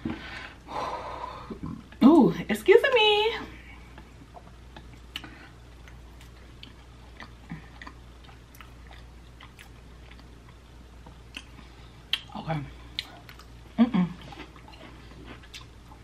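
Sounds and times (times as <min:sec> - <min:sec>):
person chewing food: 0:03.8 - 0:16.0
mouth clicks and smacks: 0:05.9 - 0:12.4.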